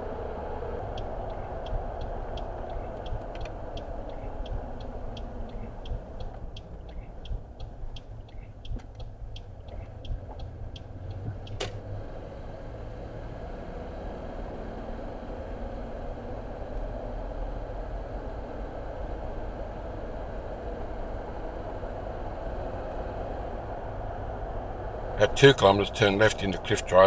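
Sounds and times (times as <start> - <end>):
car driving rumble: 0.0 - 27.0
turn indicator ticking: 0.7 - 11.8.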